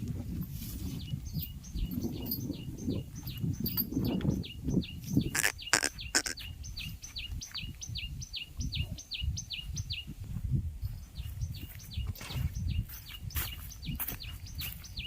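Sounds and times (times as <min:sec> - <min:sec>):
bird repeating short falling call: 0:05.3 - 0:06.4.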